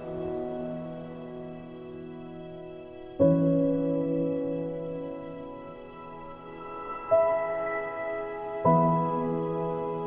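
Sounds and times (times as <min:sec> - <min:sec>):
soft piano chords: 0:00.0 - 0:10.0.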